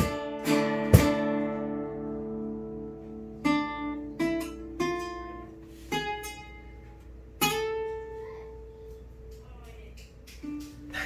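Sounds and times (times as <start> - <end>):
guitar strums ringing: 0.0 - 8.8.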